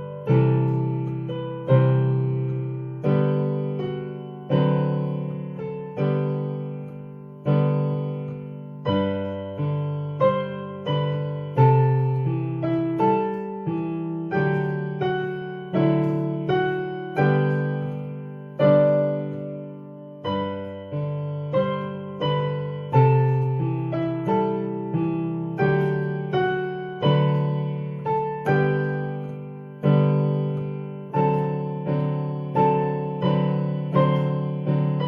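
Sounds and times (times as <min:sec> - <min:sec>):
piano playing hymn chords: 0:00.0 - 0:35.0.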